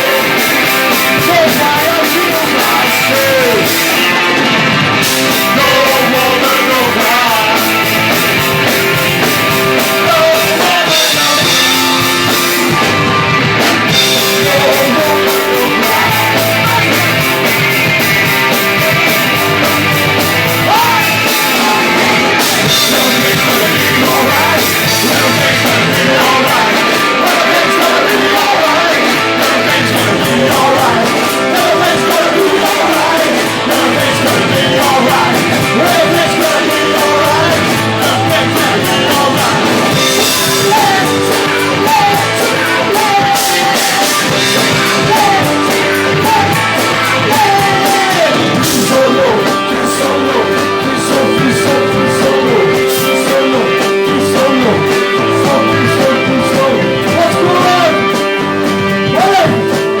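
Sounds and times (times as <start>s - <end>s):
person singing: 0.0s - 4.2s, 5.0s - 12.9s, 13.9s - 60.0s
rock band with guitar: 0.0s - 60.0s.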